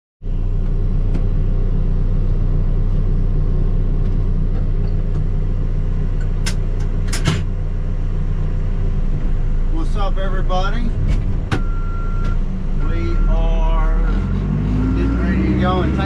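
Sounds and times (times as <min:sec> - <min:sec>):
diesel engine idling: 0:00.2 - 0:16.0.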